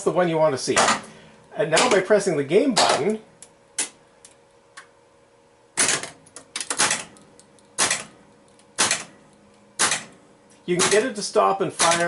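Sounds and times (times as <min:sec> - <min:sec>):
pinball solenoids clacking: 0:05.8 - 0:08.1, 0:10.8 - 0:11.2, 0:11.8 - 0:12.0.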